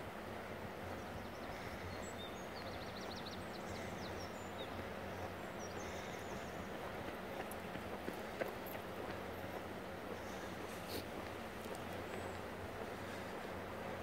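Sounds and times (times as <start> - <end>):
small birds twittering: 0.9 - 8.8.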